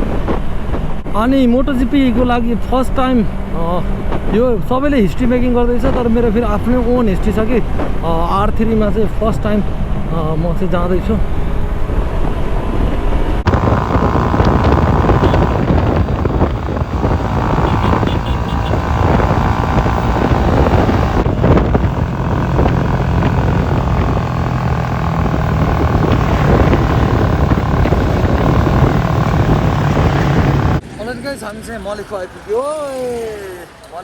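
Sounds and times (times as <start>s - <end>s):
wind rush on microphone: 11.4s - 30.8s
motorcycle engine running: 13.4s - 30.9s.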